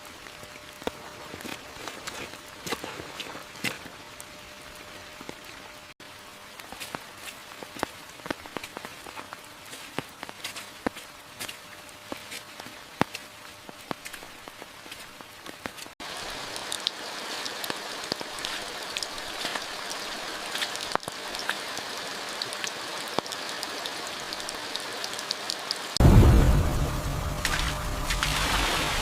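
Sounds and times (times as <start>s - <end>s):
rain falling: 0.0s - 29.0s
loud low rumble: 26.0s - 29.0s.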